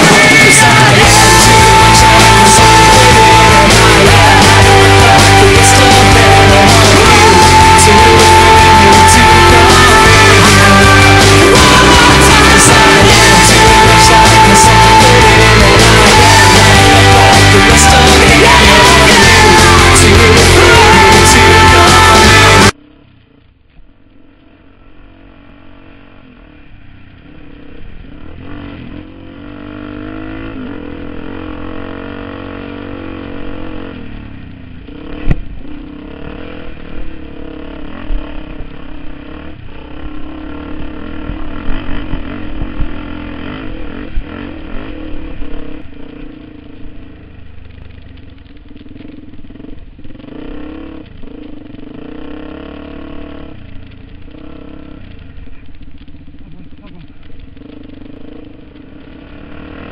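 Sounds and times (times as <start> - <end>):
dirt bike engine revving: 0.0 - 23.4, 24.2 - 59.9.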